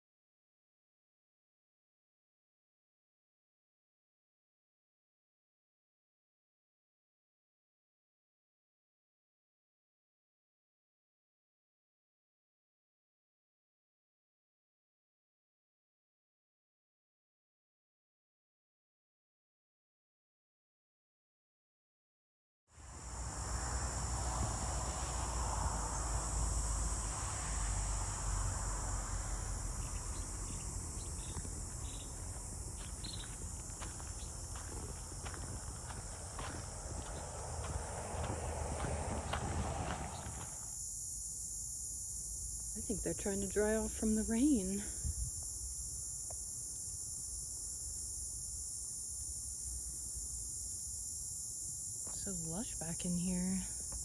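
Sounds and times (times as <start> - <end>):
insects chorus: 22.8 - 54.0
low rumble: 24.0 - 40.5
footsteps crackling through brush: 29.6 - 40.6.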